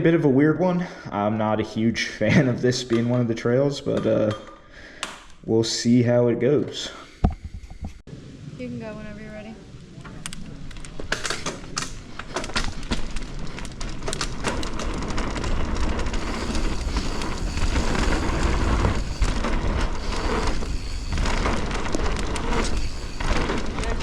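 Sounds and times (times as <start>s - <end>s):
bike clicks and rattles: 10.0s - 24.0s
tyre rumble on dirt: 10.8s - 24.0s
wind on microphone: 14.8s - 24.0s.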